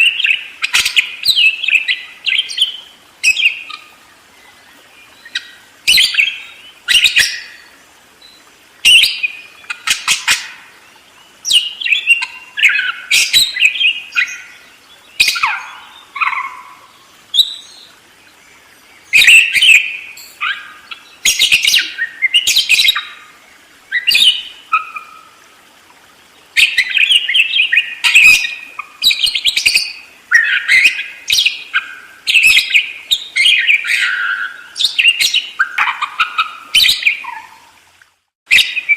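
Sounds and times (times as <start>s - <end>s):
budgerigar chattering and warbling: 35.6s - 37.5s.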